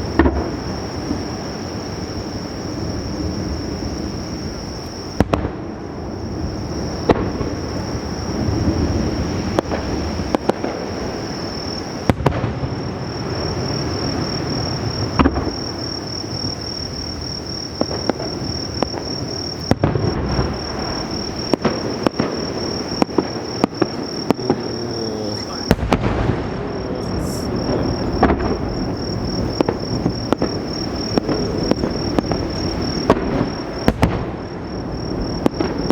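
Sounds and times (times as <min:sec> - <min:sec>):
firework sharp booms: 0:00.0 - 0:35.9
rolling rumble of echoing bursts: 0:22.6 - 0:33.9.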